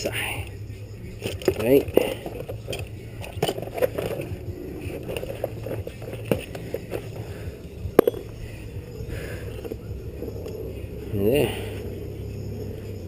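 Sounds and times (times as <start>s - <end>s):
steady low hum: 0.0s - 13.0s
metal tools clicking and scraping: 1.1s - 7.4s, 8.0s - 8.4s.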